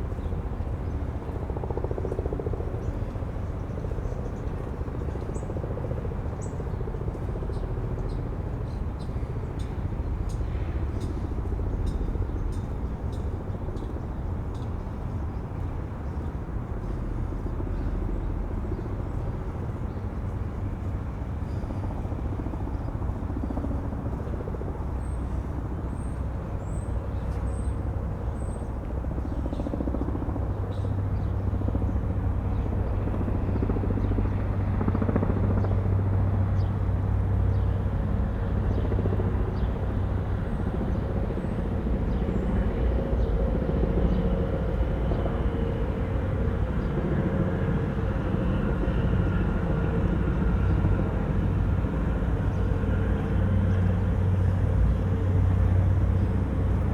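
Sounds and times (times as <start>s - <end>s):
distant engine drone: 17.2s - 56.9s.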